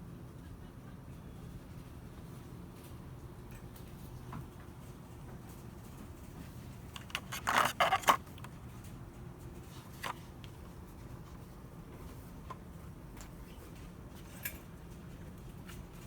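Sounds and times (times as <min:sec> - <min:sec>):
scraping and rustling: 0:06.3 - 0:08.6.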